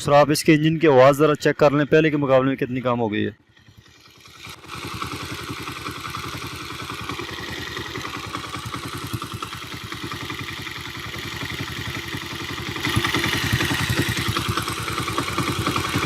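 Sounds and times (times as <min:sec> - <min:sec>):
motorcycle engine idling: 0:03.3 - 0:16.0.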